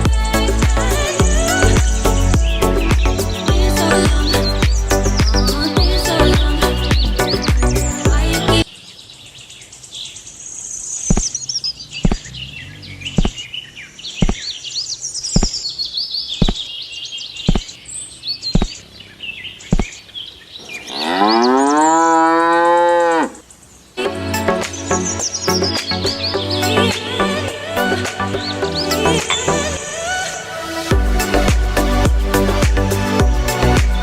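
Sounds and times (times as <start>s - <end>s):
birds chirping: 0.0s - 34.0s
sharp clicks: 12.0s - 12.3s, 13.2s - 13.4s, 14.2s - 14.5s, 16.4s - 16.6s, 17.5s - 17.8s, 18.5s - 18.8s
cow mooing: 20.8s - 23.4s.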